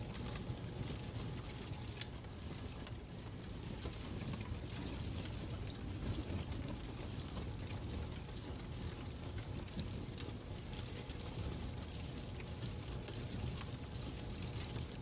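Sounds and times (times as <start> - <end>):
fireplace crackling: 0.0 - 15.0.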